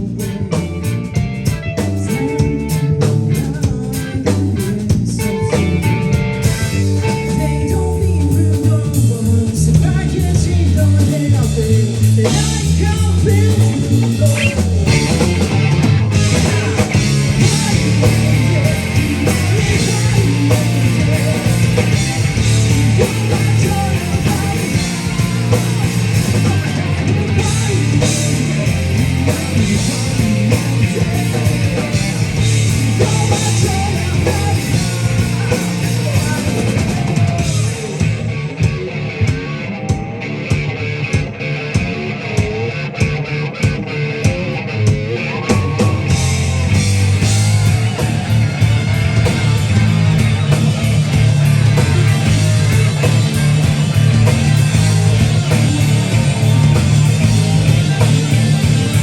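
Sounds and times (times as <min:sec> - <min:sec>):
live rock band playing: 0:00.0 - 0:59.0
person singing: 0:02.0 - 0:15.4, 0:16.2 - 0:38.0.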